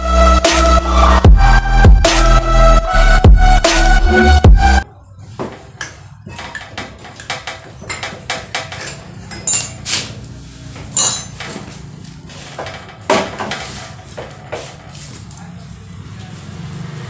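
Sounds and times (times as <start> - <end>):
metal tools clinking: 5.8 - 14.0.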